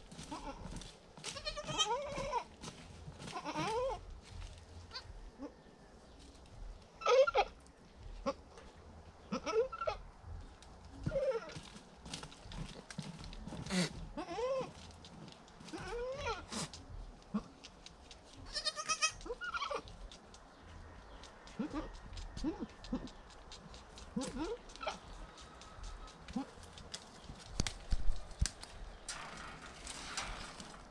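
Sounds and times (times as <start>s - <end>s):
goats bleating: 1.3s - 2.5s, 3.2s - 4.1s, 13.7s - 14.8s, 15.7s - 16.7s, 18.4s - 19.9s, 21.5s - 23.1s.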